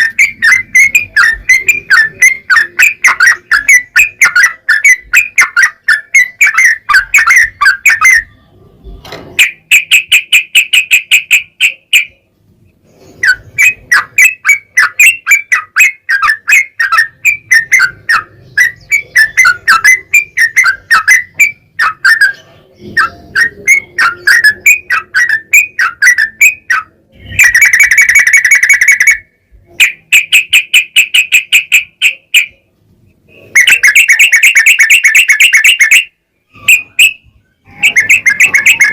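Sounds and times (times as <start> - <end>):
bulbul bubbly chattering song: 0.0 - 8.5, 9.4 - 12.3, 13.2 - 38.9.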